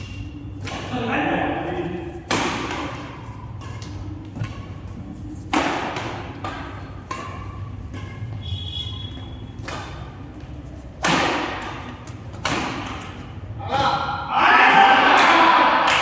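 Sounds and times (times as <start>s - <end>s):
rackets hitting shuttlecock: 0.3s - 1.0s, 1.8s - 14.1s.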